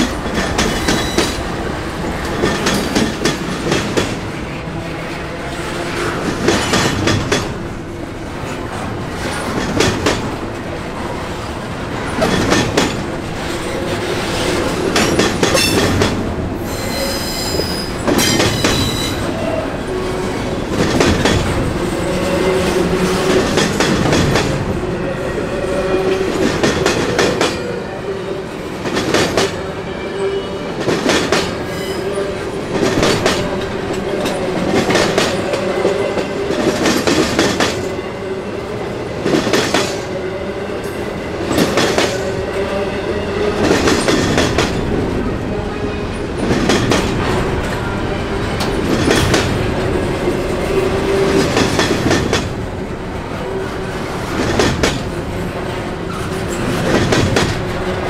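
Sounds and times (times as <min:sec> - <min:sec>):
train wheels clacking over rails: 0:00.0 - 0:04.4, 0:05.6 - 0:07.7, 0:08.4 - 0:19.4, 0:20.2 - 0:27.9, 0:28.6 - 0:40.2, 0:40.8 - 0:45.2, 0:46.2 - 0:58.0
low steady wheel squeal: 0:16.7 - 0:18.0
high wheel squeal: 0:16.7 - 0:20.0.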